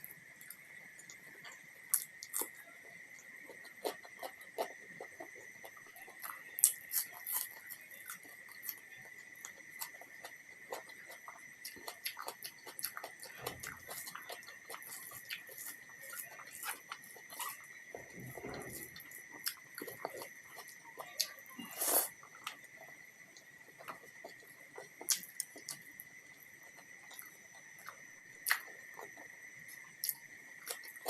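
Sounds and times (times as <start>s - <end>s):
steady high-pitched whine: 0.0s - 31.0s.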